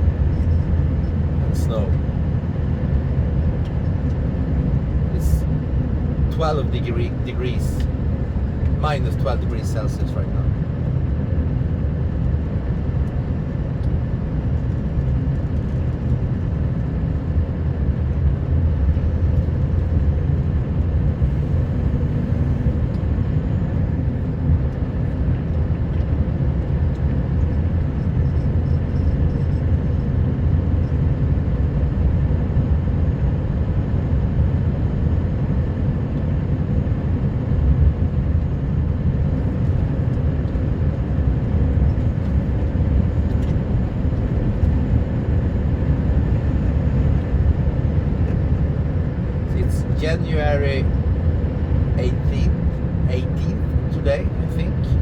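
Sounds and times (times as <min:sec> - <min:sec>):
truck diesel engine rumbling: 0:00.0 - 0:10.5, 0:37.9 - 0:55.0.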